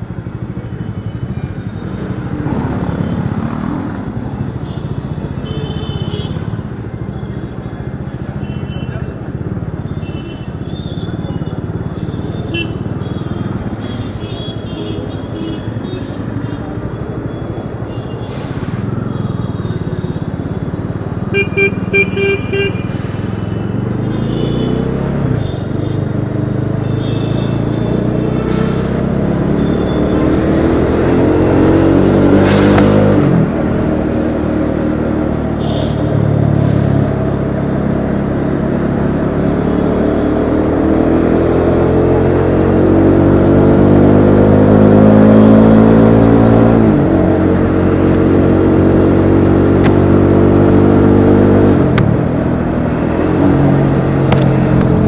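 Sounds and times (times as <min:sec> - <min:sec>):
vehicle horn short toots: 0:21.4 - 0:23.0.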